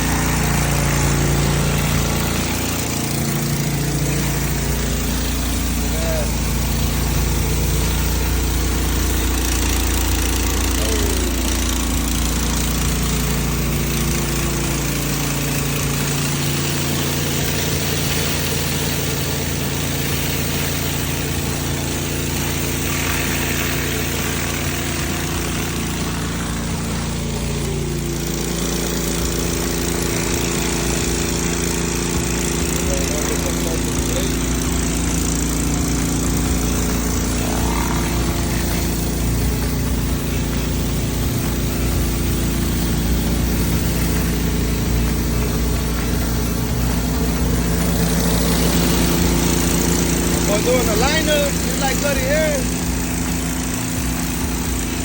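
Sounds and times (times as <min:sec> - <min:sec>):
pressure washer engine running: 0:00.0 - 0:55.0
water spray hissing: 0:14.1 - 0:28.3, 0:36.6 - 0:45.4.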